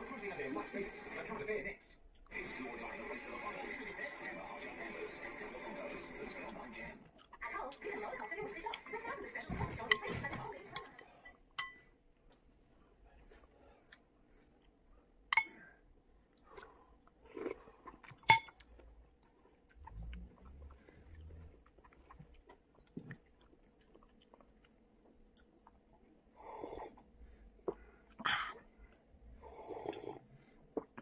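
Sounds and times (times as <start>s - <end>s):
person chewing: 6.4s - 8.9s, 13.3s - 14.8s, 16.1s - 31.0s
metal spoon clinking on ceramic bowl: 11.6s - 11.8s, 18.3s - 18.6s
person sipping from mug: 26.4s - 28.6s, 29.4s - 31.0s.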